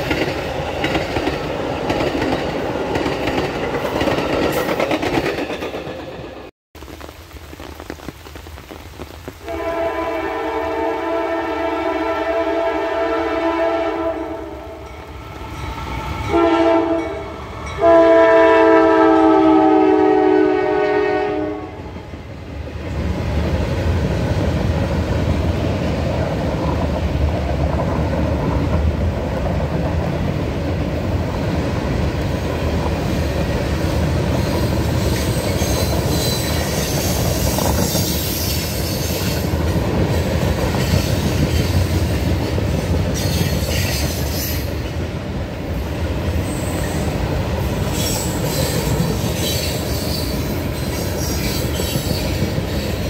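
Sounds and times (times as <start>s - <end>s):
freight cars rumbling on rails: 0.0s - 6.5s, 22.8s - 53.0s
locomotive air horn: 9.4s - 14.8s, 15.9s - 21.9s
train wheel squeal: 34.3s - 39.6s, 40.7s - 44.9s, 46.4s - 47.2s, 47.8s - 53.0s.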